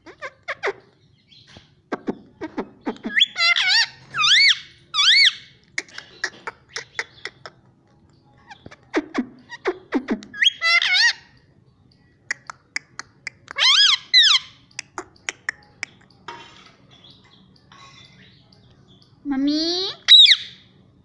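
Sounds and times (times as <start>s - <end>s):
parrot chirps: 2.4s - 7.5s, 8.4s - 11.5s, 12.3s - 16.1s, 19.9s - 20.7s
parrot warbling whistled calls: 3.1s - 5.5s, 20.0s - 20.6s
parrot raspy call: 13.3s - 15.5s.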